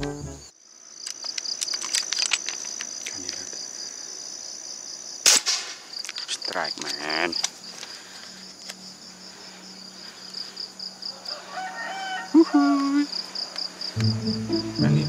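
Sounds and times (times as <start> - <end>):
insect chirping: 0.3 - 14.8
crowing-like animal call: 11.1 - 13.1.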